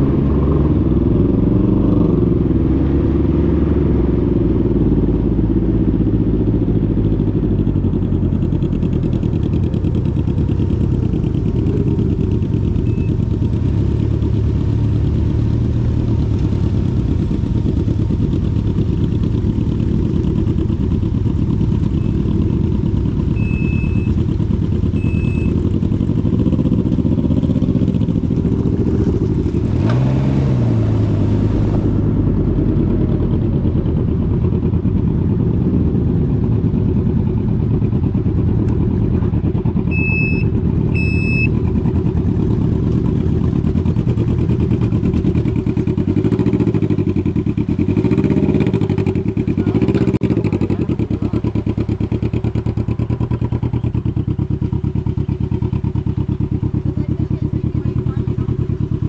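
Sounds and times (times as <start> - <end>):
motorcycle engine running: 0.0 - 59.0
short high beeps: 12.8 - 13.2, 23.3 - 24.2, 25.0 - 25.6, 39.9 - 41.6.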